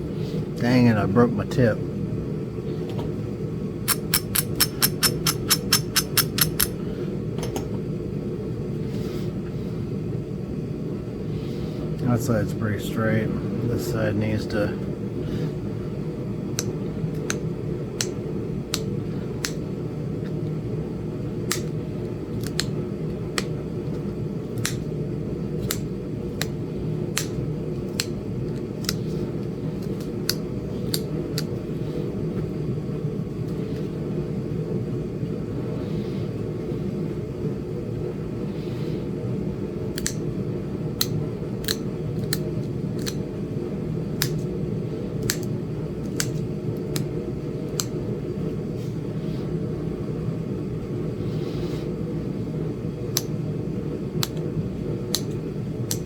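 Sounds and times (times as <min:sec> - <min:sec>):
steady low rumble: 0:00.0 - 0:56.0
stone-on-stone flaking clicks: 0:03.9 - 0:06.7.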